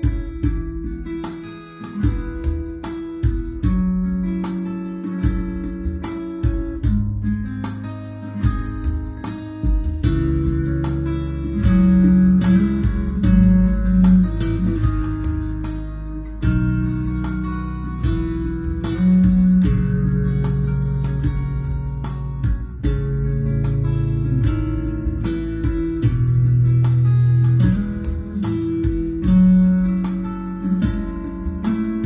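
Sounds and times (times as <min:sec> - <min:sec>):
plucked and strummed guitar: 0:00.0 - 0:32.0
strong bass line: 0:08.4 - 0:32.0.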